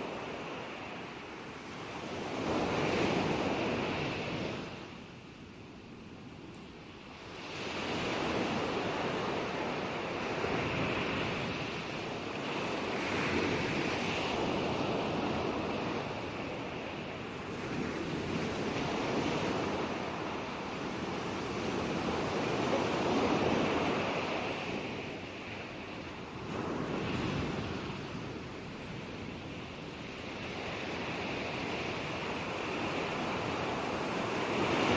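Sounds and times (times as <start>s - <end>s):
ocean waves on shore: 0.0s - 34.9s.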